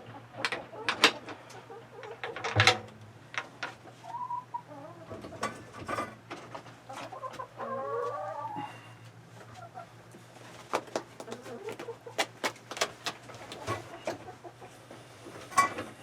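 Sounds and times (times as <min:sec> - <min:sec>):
chickens clucking: 0:00.0 - 0:16.0
handling knocks and clicks: 0:02.0 - 0:03.8.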